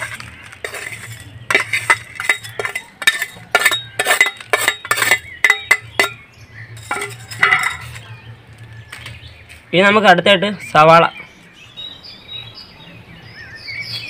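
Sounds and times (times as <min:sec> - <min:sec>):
spoon clinking against a bowl: 0:00.0 - 0:06.2, 0:06.8 - 0:08.1.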